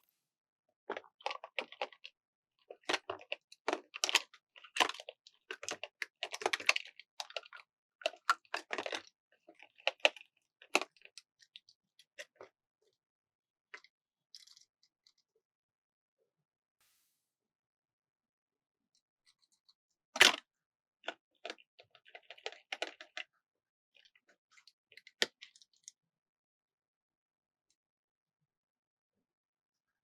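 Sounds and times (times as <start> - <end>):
plastic toy packaging crinkling: 21.4 - 23.2.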